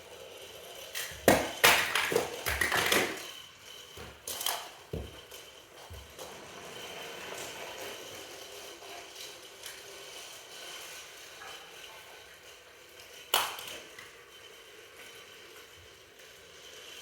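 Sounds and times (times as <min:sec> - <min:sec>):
toy train pieces clicking: 0:07.7 - 0:17.0.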